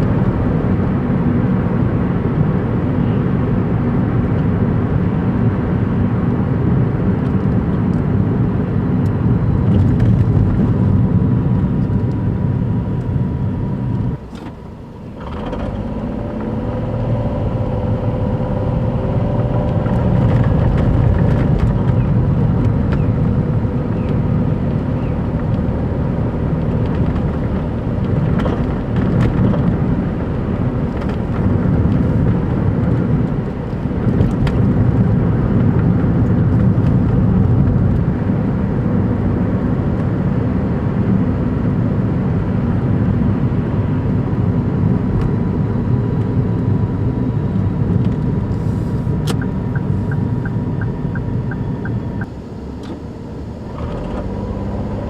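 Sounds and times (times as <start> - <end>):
car engine low rumble: 0.0 - 55.0.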